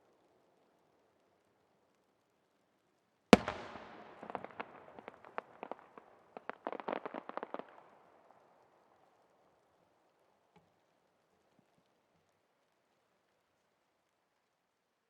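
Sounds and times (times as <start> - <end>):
firework bang: 3.4 - 5.2
firework crackling pops: 3.4 - 8.6.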